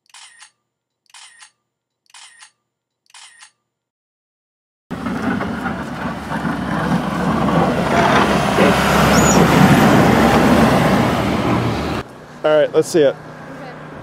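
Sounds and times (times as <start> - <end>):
vehicle engine and road noise: 4.9 - 14.0.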